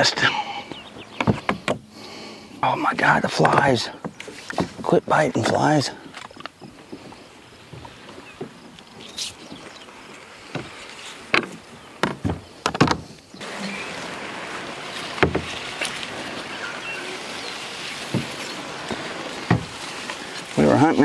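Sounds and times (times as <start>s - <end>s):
knocks against kayak hull: 10.5s - 13.1s, 15.2s - 15.6s, 18.1s - 19.8s
steady rushing noise: 13.4s - 21.0s.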